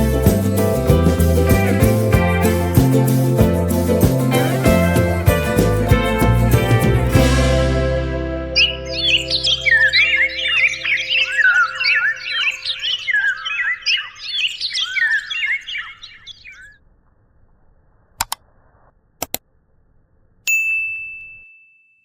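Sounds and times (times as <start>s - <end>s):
rapid bird chirping: 8.6s - 16.8s
sharp clicks: 18.2s - 18.4s, 19.2s - 19.4s
bell-like ding: 20.5s - 22.0s.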